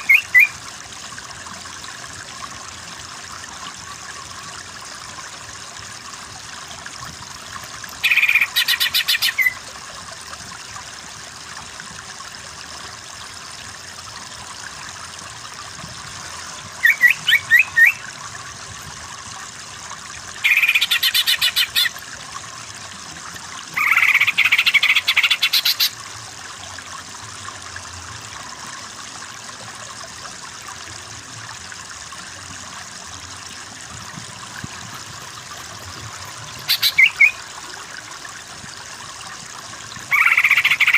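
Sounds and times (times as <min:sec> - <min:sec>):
bird chattering notes: 0:00.0 - 0:00.5, 0:08.0 - 0:09.6, 0:16.8 - 0:18.0, 0:20.4 - 0:21.9, 0:23.8 - 0:25.9, 0:36.6 - 0:37.4, 0:40.1 - 0:40.9
trickle of running water: 0:00.0 - 0:40.9.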